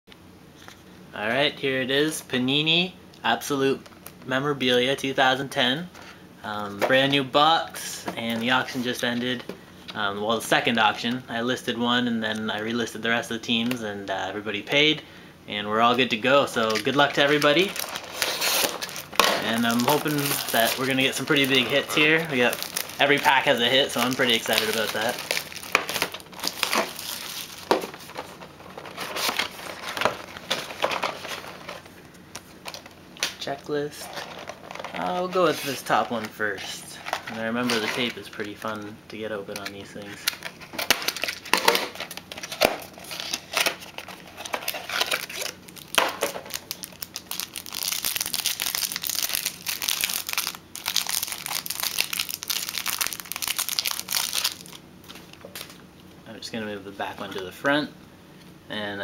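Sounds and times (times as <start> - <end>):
plastic wrapping crinkling: 16.6 - 32.9, 39.5 - 55.8
tape tearing: 16.7 - 31.8, 40.2 - 54.7.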